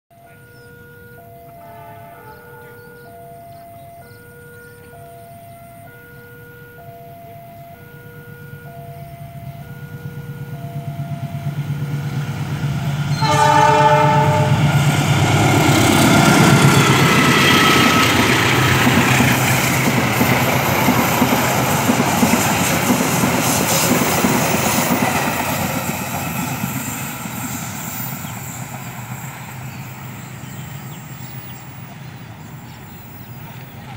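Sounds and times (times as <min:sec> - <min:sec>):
locomotive horn blasts: 0:00.3 - 0:03.1, 0:13.1 - 0:15.4
train wheels rumbling and clattering: 0:08.9 - 0:33.9.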